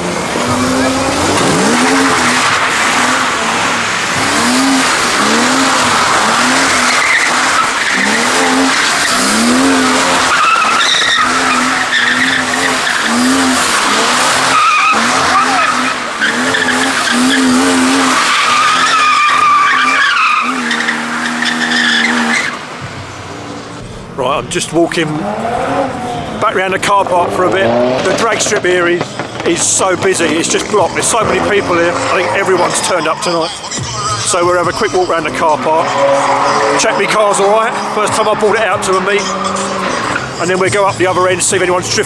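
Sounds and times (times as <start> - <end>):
car engine revving: 0.0 - 42.0
tyres screeching: 0.0 - 42.0.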